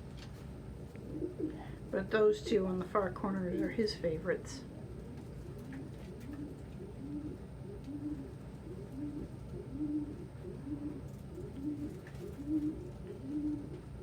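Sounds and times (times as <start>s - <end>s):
pigeons cooing: 0.7s - 1.9s, 4.6s - 14.0s.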